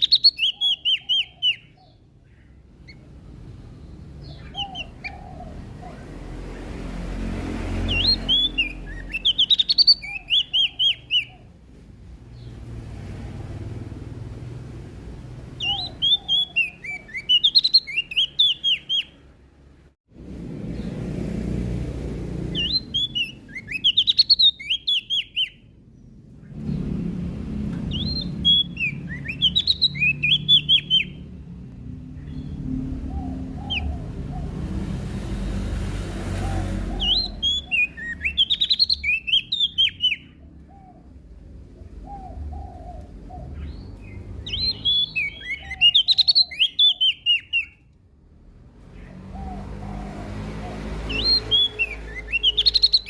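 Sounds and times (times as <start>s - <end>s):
bird chirping rapidly: 0.0s - 11.6s, 15.4s - 19.3s, 22.4s - 27.2s, 27.8s - 31.5s, 32.1s - 35.7s, 36.6s - 47.9s, 48.9s - 53.0s
low rumble: 26.1s - 29.2s.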